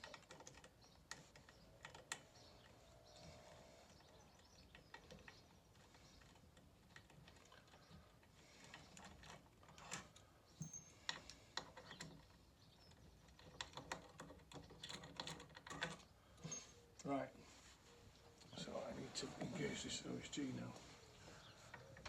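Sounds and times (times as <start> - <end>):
hand tools clicking and tapping: 0.0 - 16.6.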